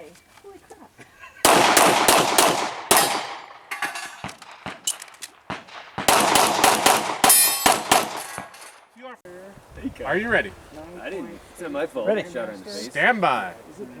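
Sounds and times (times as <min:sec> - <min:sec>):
gunshots: 0:01.4 - 0:03.6, 0:04.2 - 0:08.7
steel targets clanging: 0:02.9 - 0:05.2, 0:07.2 - 0:08.9.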